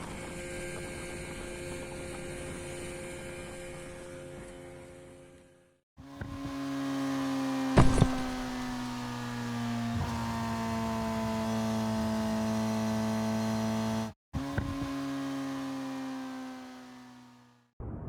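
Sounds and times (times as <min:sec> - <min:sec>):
soft knock: 0:07.8 - 0:08.8
short clatter: 0:07.8 - 0:09.1
small motor humming: 0:07.8 - 0:17.6.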